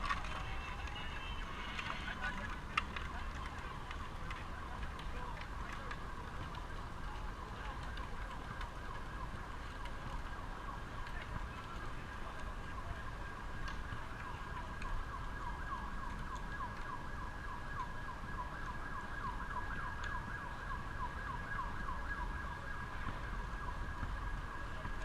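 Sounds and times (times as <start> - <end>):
siren yelping: 7.4 - 25.0.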